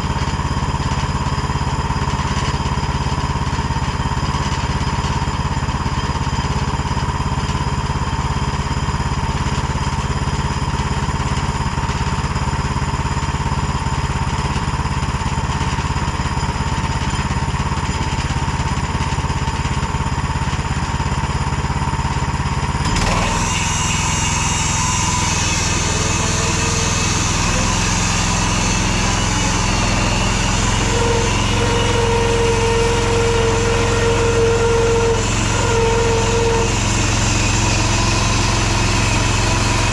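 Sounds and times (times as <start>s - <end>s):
band sawmill cutting log: 0.0s - 39.9s
gasoline engine running: 0.0s - 39.9s
high whine: 24.7s - 39.9s.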